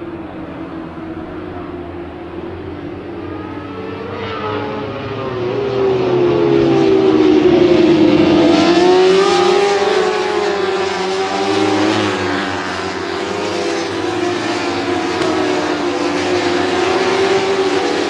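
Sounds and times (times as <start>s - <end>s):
racing motorcycle engines revving: 0.0s - 18.0s.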